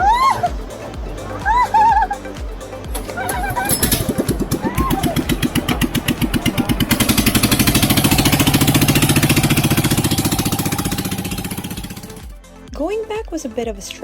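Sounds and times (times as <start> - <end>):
motorboat engine putter: 1.4 - 12.4.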